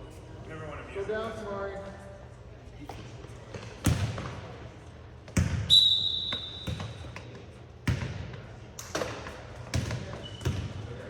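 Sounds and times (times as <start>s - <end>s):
basketball bouncing on gym floor: 3.8s - 4.4s, 5.3s - 5.7s, 6.3s - 10.9s.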